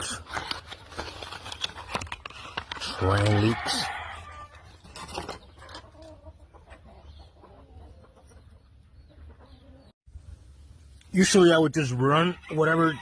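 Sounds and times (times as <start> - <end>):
chickens clucking: 4.9 - 10.0.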